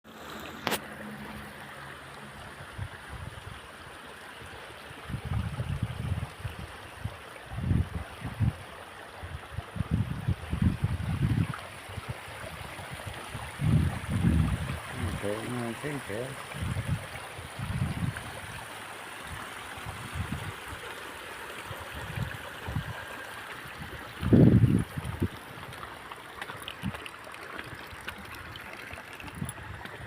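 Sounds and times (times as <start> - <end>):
stream water flowing: 0.1 - 30.0
wind buffeting microphone: 5.1 - 8.6, 9.2 - 18.6, 19.3 - 20.6, 23.7 - 25.7.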